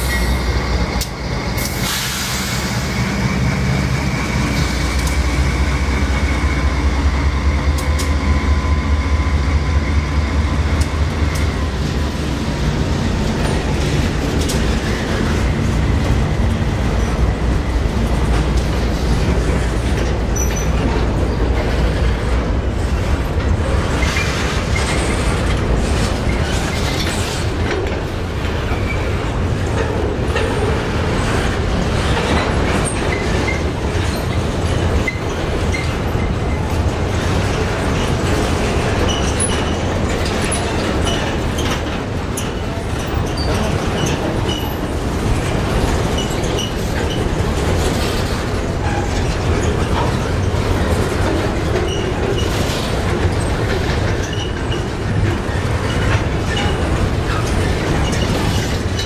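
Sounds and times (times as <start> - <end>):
freight cars rattling: 0.0 - 59.0
steel wheels rumbling on rails: 0.0 - 59.0.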